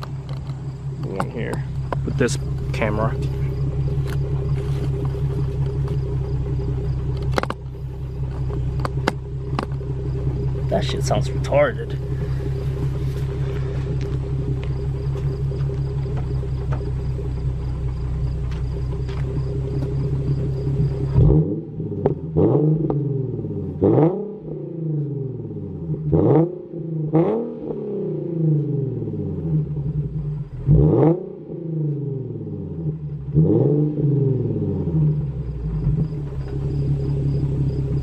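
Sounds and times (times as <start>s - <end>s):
car engine idling and revving: 0.0s - 38.0s.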